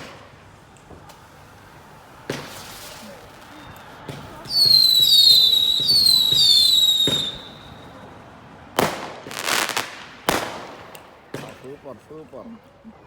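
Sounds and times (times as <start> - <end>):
firework bangs: 0.0 - 8.0, 8.8 - 11.7
firework whistles falling in pitch: 4.5 - 7.9.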